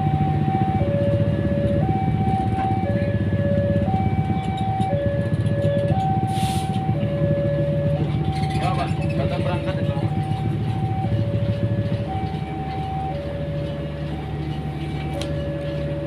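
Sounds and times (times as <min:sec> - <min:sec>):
diesel train rumble: 0:00.0 - 0:16.0
two-tone electronic warning alarm: 0:00.0 - 0:16.0.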